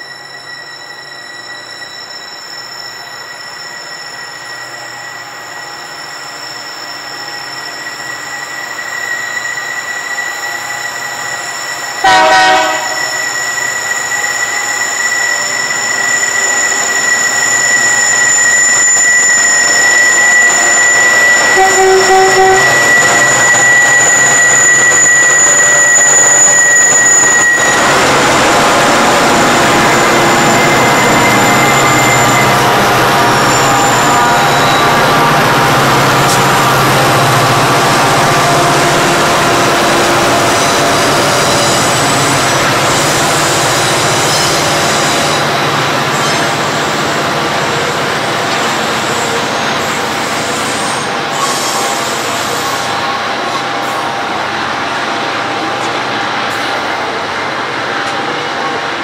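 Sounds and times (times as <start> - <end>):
diesel locomotive engines: 0.0 - 59.0
train wheel noise: 0.0 - 59.0
train horn blast: 12.0 - 13.1, 21.6 - 22.8.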